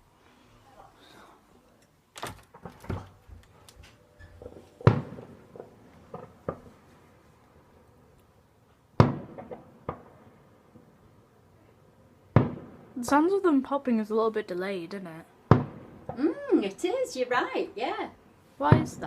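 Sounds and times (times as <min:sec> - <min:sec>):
distant fireworks bangs and pops: 0:04.4 - 0:06.8, 0:09.0 - 0:10.3, 0:12.3 - 0:13.0, 0:15.5 - 0:16.2.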